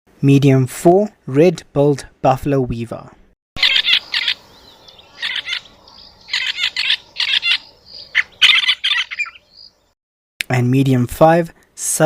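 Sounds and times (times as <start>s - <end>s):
bird harsh chattering call: 3.6s - 9.8s.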